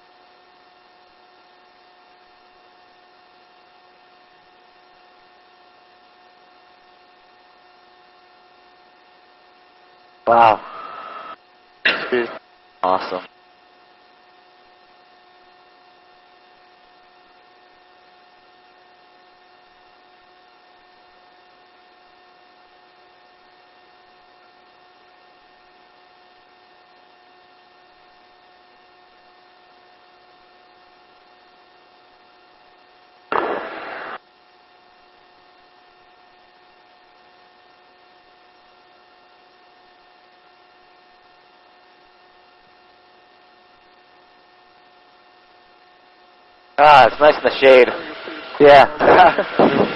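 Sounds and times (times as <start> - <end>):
intercom hum with held tones: 10.3 - 11.4, 33.3 - 34.2, 46.8 - 49.9
loud burst of noise: 33.3 - 34.2, 47.2 - 49.9.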